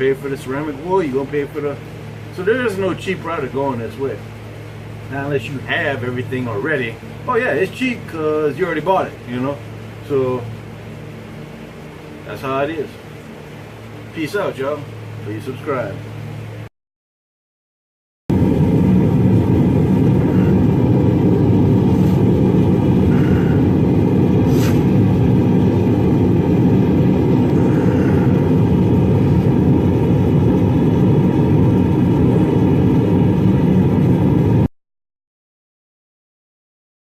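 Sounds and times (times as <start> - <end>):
gas forge burner rushing: 18.3 - 34.7.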